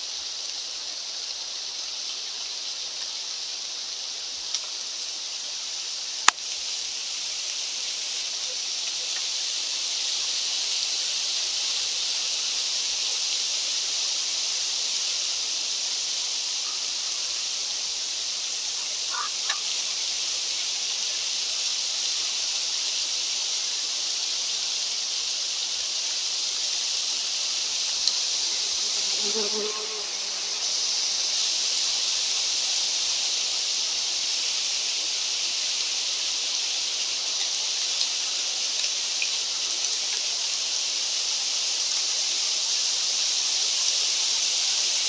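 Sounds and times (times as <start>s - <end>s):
wind hissing: 9.4s - 39.6s.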